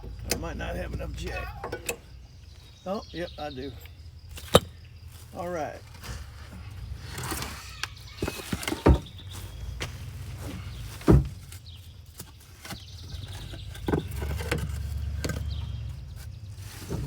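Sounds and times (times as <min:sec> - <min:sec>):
heavy thumps: 0:00.0 - 0:02.3.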